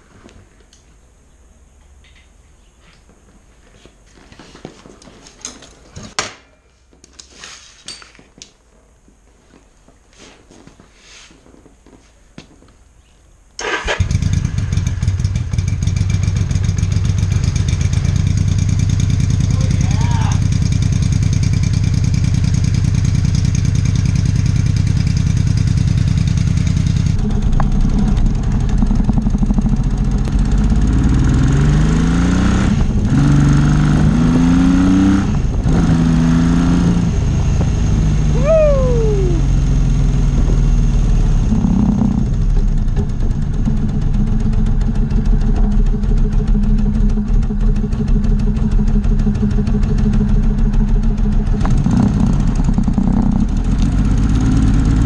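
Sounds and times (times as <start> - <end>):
vehicle engine running and revving: 14.0 - 55.0.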